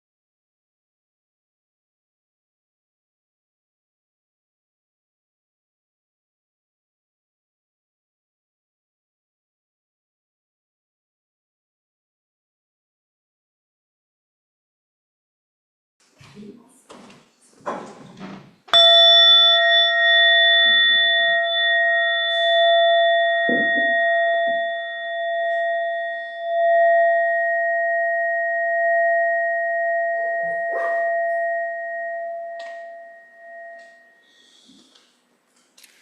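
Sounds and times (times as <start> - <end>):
bell ringing: 18.8 - 34.2.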